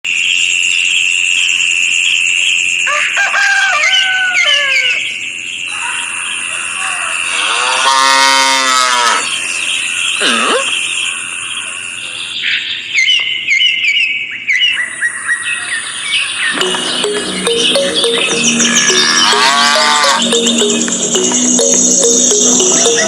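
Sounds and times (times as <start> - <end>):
cow mooing: 7.4 - 9.3, 18.8 - 20.3
steady high-pitched tone: 16.5 - 23.0
short gliding animal calls: 18.7 - 20.3.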